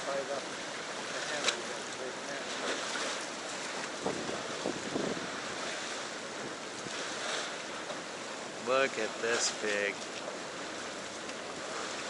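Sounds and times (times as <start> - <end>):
stream water rushing: 0.0 - 12.0
wind on the microphone: 3.9 - 7.0.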